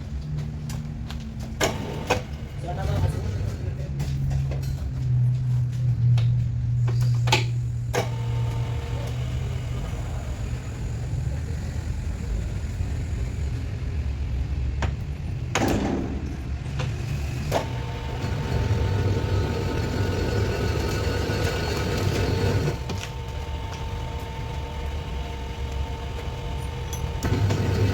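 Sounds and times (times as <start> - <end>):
machine humming: 6.7 - 14.4, 16.0 - 27.9.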